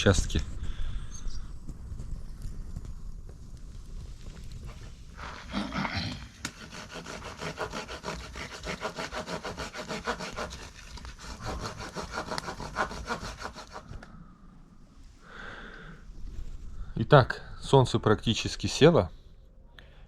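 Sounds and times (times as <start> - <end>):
rasping strokes on wood: 6.3 - 14.0.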